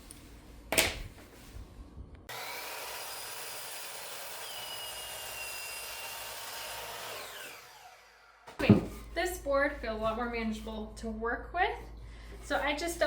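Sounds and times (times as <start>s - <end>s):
power saw cutting wood: 2.3s - 8.6s.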